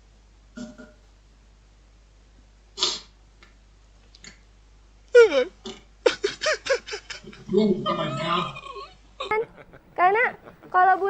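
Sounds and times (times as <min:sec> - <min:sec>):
high-pitched squealing laughter: 0:06.1 - 0:10.8.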